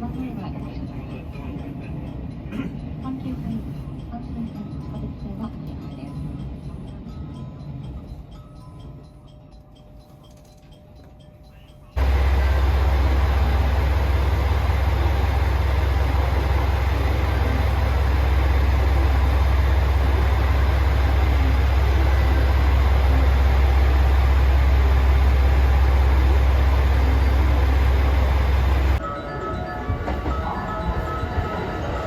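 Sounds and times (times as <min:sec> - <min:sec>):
train running: 0:00.0 - 0:32.0.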